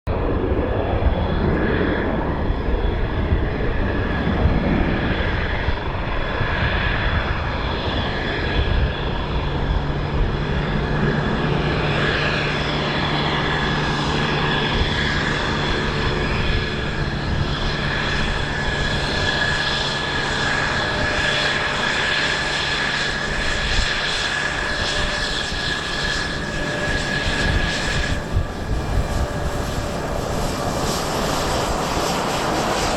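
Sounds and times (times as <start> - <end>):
jet engine whine: 0.0 - 32.9
wind on microphone: 0.1 - 32.9.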